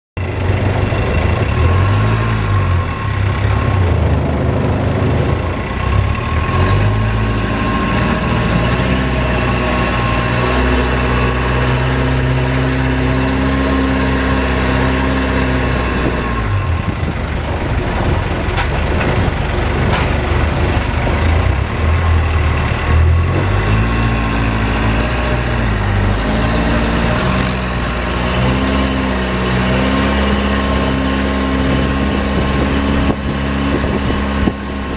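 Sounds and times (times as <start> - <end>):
boat engine running hard: 0.2 - 34.9.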